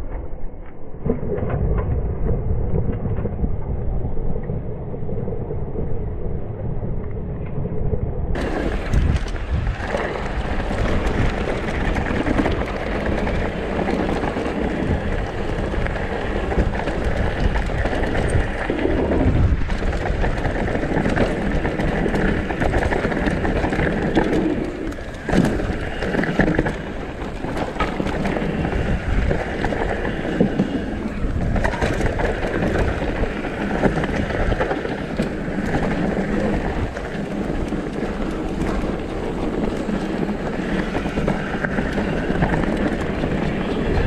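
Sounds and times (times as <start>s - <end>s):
wind on microphone: 0.0s - 44.0s
tyres rumbling over dirt and rocks: 8.3s - 44.0s
bike rattling: 8.4s - 44.0s.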